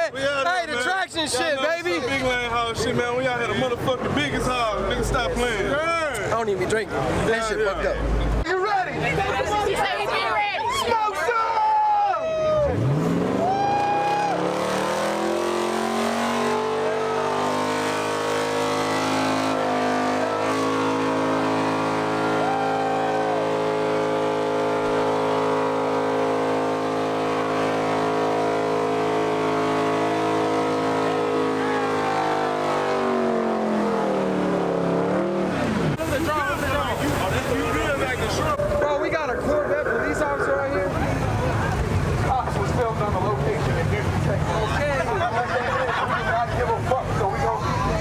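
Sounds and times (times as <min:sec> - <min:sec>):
car engine revving high: 0:12.4 - 0:38.7.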